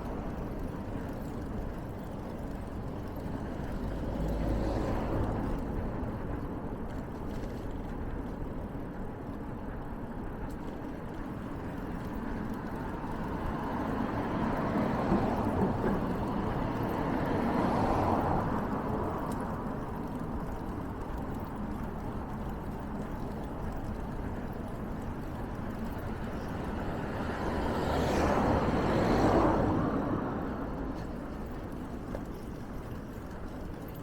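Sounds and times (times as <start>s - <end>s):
vehicle passing by: 3.6s - 6.0s, 12.9s - 20.5s, 26.1s - 32.0s.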